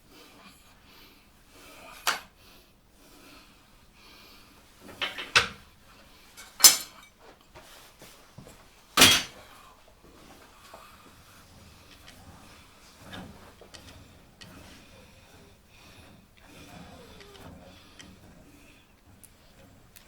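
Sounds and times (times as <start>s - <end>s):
metal tooling clanking: 6.4s - 7.1s, 9.0s - 9.4s.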